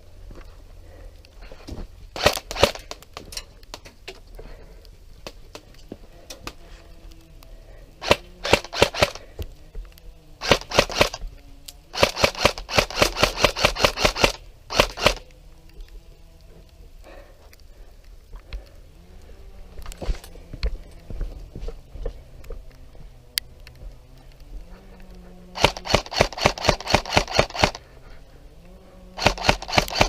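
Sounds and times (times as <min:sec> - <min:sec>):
airsoft guns firing rapid shots: 0:02.2 - 0:03.0, 0:08.0 - 0:09.2, 0:10.4 - 0:11.2, 0:11.9 - 0:15.2, 0:25.6 - 0:27.8, 0:29.2 - 0:30.0.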